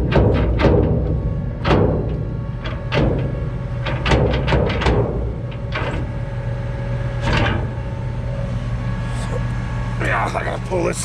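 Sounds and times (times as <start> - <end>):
sharp knocks and clanks: 0.0 - 6.1
engine running steadily: 0.0 - 11.0.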